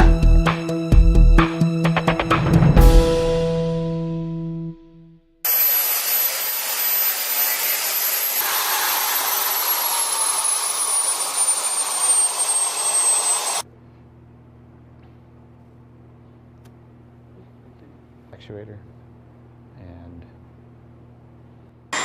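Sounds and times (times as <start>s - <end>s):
high turbine whine: 5.5s - 13.6s
turbine air rush: 5.5s - 13.6s.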